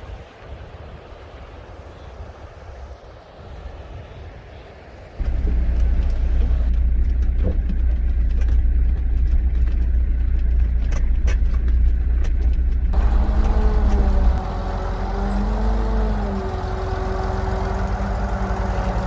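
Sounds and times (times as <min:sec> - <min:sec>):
truck engine rumbling: 0:05.2 - 0:19.0
pitched engine note rising: 0:13.0 - 0:19.0.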